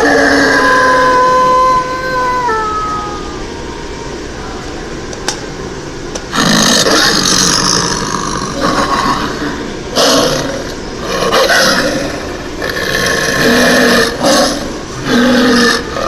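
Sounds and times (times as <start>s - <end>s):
wolf howling: 0.0s - 3.5s, 6.4s - 16.0s
loud rough noise: 6.3s - 16.0s.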